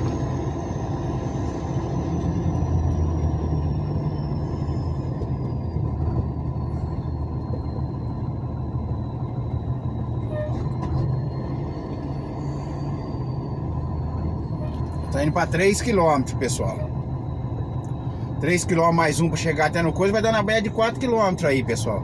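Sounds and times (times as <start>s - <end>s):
truck engine rumbling: 0.0s - 22.0s
faint high whine: 12.1s - 22.0s.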